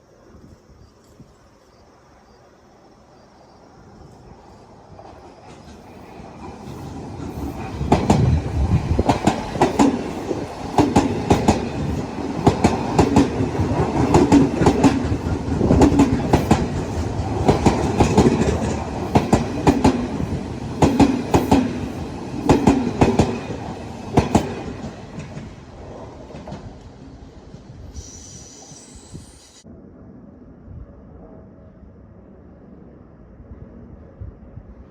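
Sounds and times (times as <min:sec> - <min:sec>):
train rumble: 0:03.7 - 0:29.8
train wheels clacking over joints: 0:05.0 - 0:25.6.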